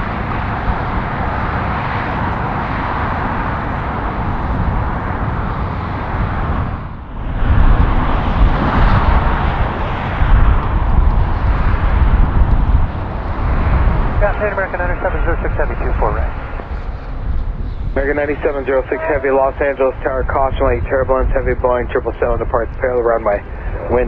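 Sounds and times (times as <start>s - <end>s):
jet airliner engine roar: 0.0s - 24.0s.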